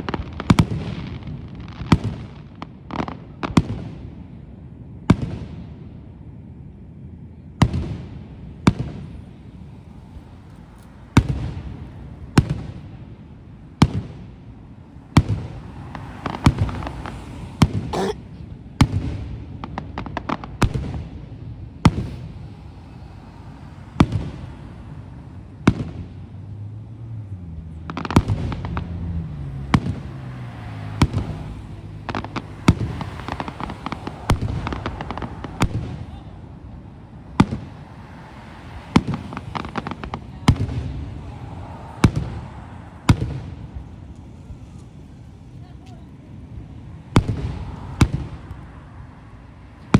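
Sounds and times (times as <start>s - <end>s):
fireworks crackling: 38.9s - 46.1s.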